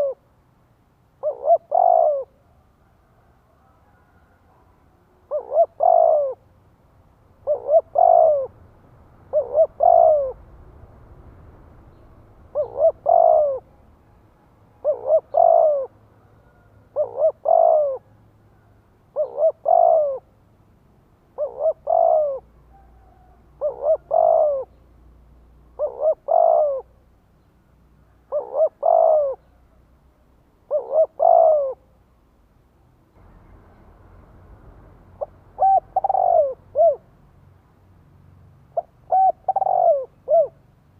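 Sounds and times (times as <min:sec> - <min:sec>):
dove cooing: 0:00.0 - 0:00.3, 0:01.2 - 0:06.5, 0:07.4 - 0:08.6, 0:09.2 - 0:10.7, 0:11.9 - 0:14.1, 0:14.7 - 0:20.3, 0:21.3 - 0:24.8, 0:25.7 - 0:27.0, 0:28.1 - 0:29.7, 0:30.6 - 0:31.9, 0:35.2 - 0:37.1, 0:38.7 - 0:40.7.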